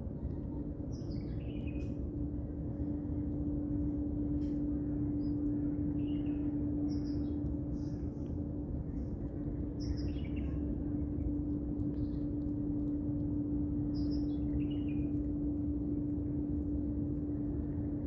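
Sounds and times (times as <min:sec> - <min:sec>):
low rumble: 0:00.0 - 0:18.0
steady low hum: 0:00.0 - 0:18.0
small birds chirping: 0:09.7 - 0:10.7.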